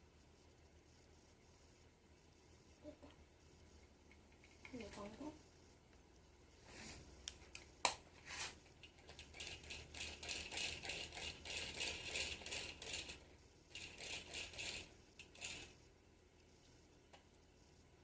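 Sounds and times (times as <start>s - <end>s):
plastic toy rattling and clicking: 8.8s - 15.7s.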